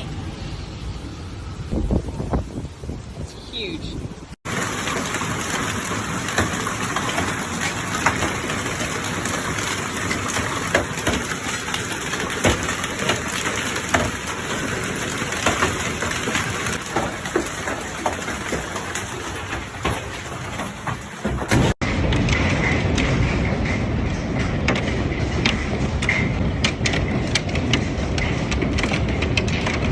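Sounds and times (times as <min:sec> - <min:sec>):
heavy rain hiss: 0:00.0 - 0:21.5
hailstones striking hard surfaces: 0:04.5 - 0:29.9.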